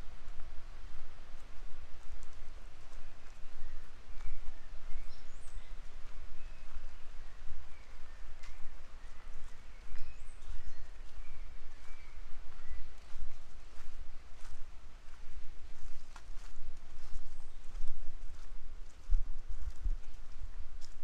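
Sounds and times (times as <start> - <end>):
birds chirping: 2.5 - 18.6.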